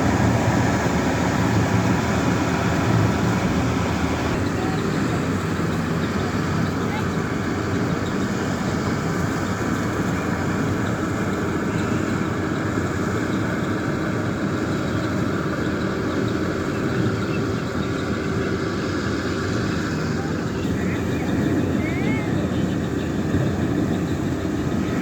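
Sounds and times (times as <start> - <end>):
combine harvester running: 0.0 - 25.0.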